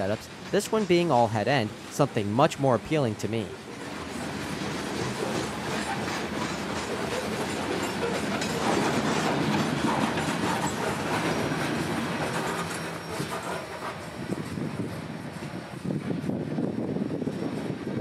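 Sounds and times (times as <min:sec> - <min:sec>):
wheels clicking over rail joints: 0:00.0 - 0:01.9, 0:03.6 - 0:14.7
train wheels rumbling: 0:00.0 - 0:18.0.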